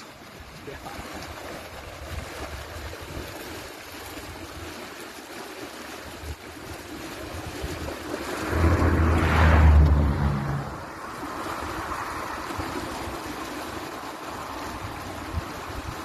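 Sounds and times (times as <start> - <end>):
flowing water rushing: 0.0 - 16.0
wind on microphone: 6.0 - 16.0.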